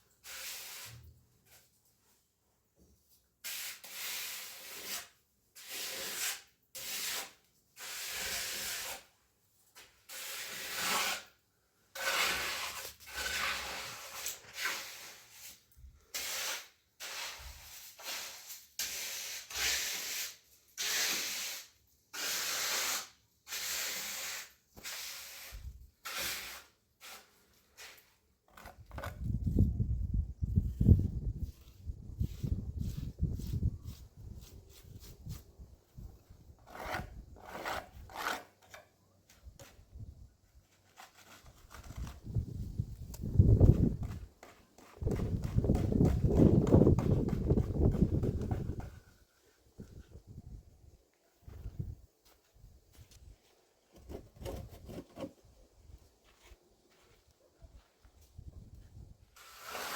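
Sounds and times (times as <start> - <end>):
rough scraping strokes: 3.4 - 9.2, 9.8 - 29.4, 30.7 - 38.9, 40.6 - 50.0, 59.4 - 59.9.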